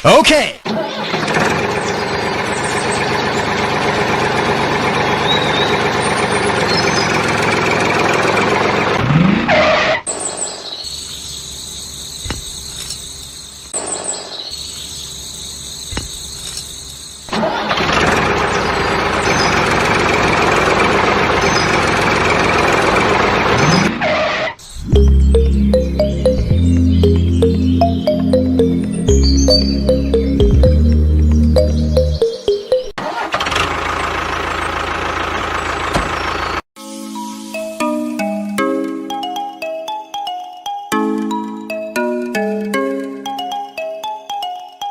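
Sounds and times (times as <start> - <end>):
tractor engine running: 0.6 - 9.9, 15.5 - 24.2, 24.8 - 36.7.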